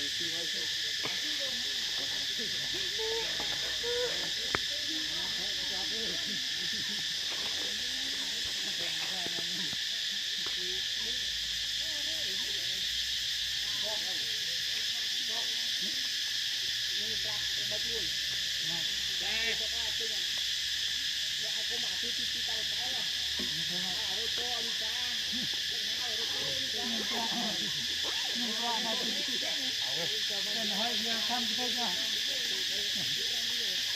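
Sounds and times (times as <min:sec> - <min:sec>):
high insect-like drone: 0:00.0 - 0:33.9.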